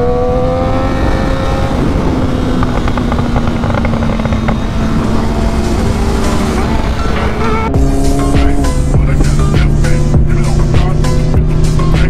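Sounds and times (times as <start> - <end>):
wind noise on microphone: 0.0 - 8.6
motorcycle engine accelerating: 0.0 - 12.0.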